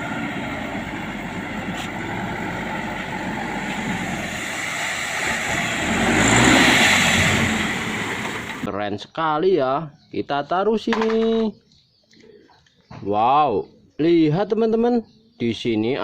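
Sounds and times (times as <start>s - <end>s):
motor vehicle engine running: 0.0s - 8.7s.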